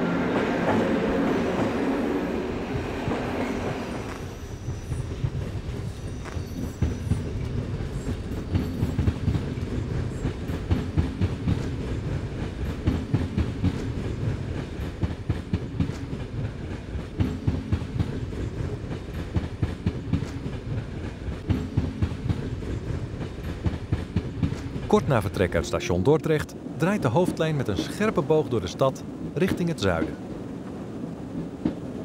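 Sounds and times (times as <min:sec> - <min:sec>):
train rumbling on rails: 0:00.0 - 0:32.0
wheels clicking over rail joints: 0:03.1 - 0:25.0.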